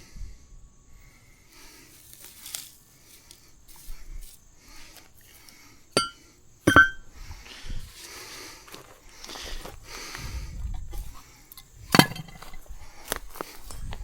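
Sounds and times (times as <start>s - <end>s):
faint handling noises: 1.5s - 14.0s
hard object clinking: 6.0s - 7.0s.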